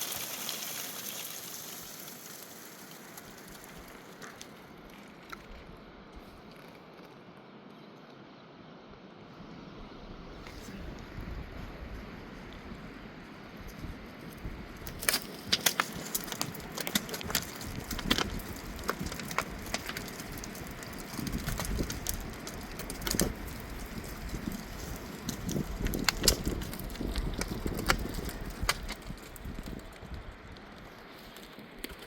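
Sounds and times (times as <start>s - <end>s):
dry wood snapping: 14.8s - 32.0s.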